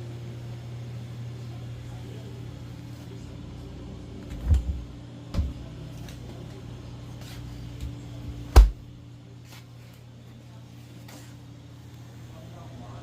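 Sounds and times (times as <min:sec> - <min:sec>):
dull knocks on refrigerator door: 0:08.5 - 0:08.8.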